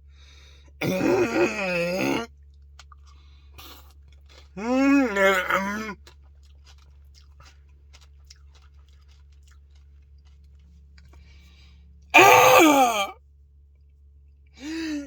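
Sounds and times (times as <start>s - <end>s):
mouth clicks and chewing: 2.0s - 11.8s.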